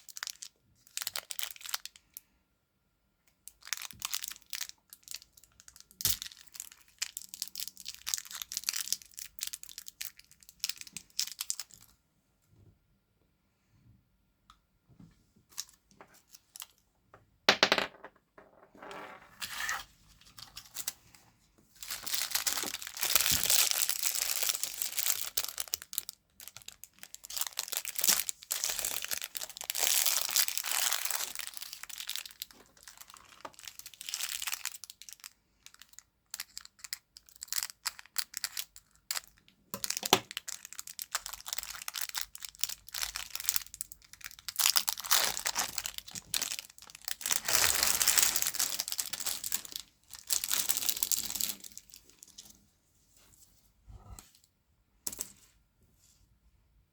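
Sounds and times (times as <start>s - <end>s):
candy wrapper crinkling: 0.0s - 2.0s, 3.5s - 11.9s, 21.8s - 52.4s.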